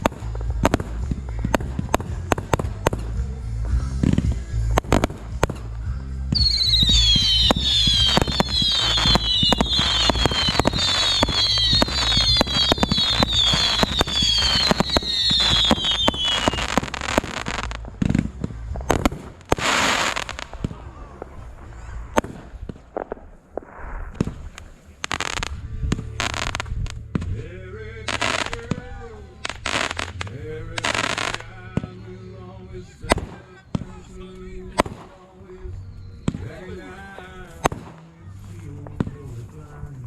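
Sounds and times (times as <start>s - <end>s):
fireworks bangs and pops: 0.0s - 32.0s, 33.0s - 35.3s, 36.2s - 40.0s
low rumble: 0.0s - 40.0s
firework whistles: 6.3s - 17.8s, 18.9s - 27.0s, 29.4s - 32.0s
hissing burst: 6.4s - 27.1s.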